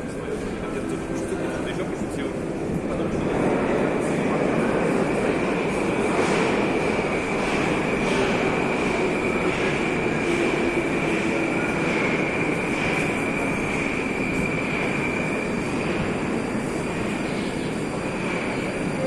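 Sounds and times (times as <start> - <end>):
metro train wheel and rail noise: 0.0 - 19.0.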